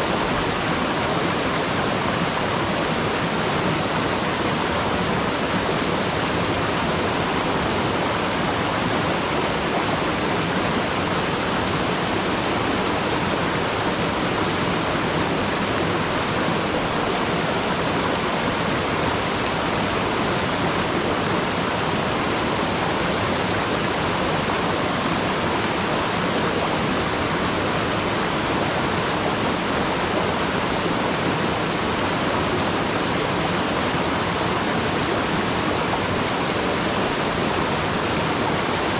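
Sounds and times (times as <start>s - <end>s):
distant waterfall roaring: 0.0s - 38.9s.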